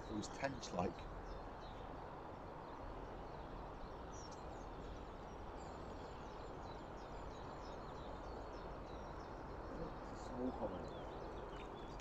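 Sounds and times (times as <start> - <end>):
birds twittering: 0.0 - 12.0
outdoor background noise: 0.0 - 12.0.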